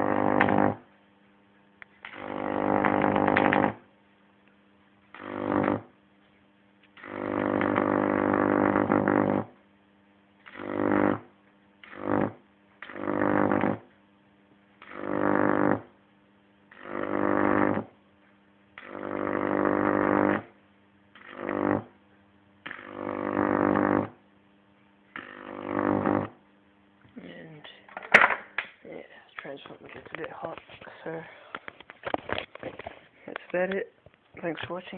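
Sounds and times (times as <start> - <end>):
harsh buzz of high-voltage arcs: 0.0 - 1.0, 1.8 - 27.1
mains hum: 0.0 - 34.9.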